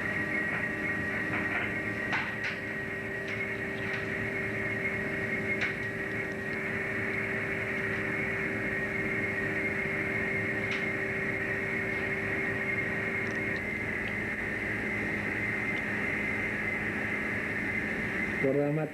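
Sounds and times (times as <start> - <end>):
boat engine humming: 0.0 - 18.7.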